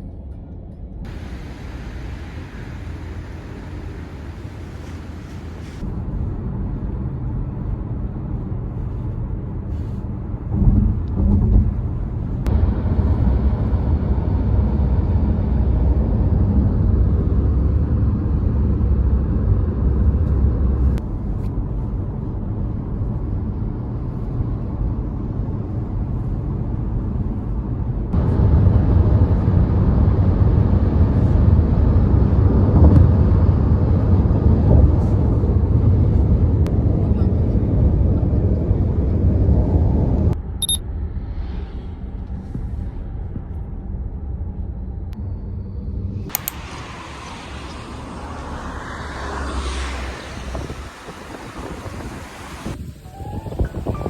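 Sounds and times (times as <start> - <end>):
car road and engine rumble: 0.1 - 54.0.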